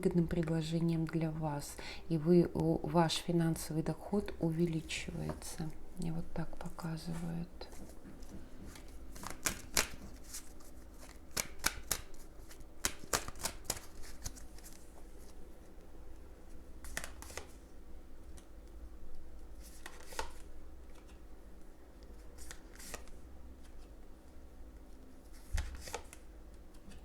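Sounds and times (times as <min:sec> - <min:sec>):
cards being shuffled: 0:07.2 - 0:15.4, 0:16.8 - 0:17.6, 0:19.6 - 0:21.2, 0:22.0 - 0:23.9, 0:25.2 - 0:27.0.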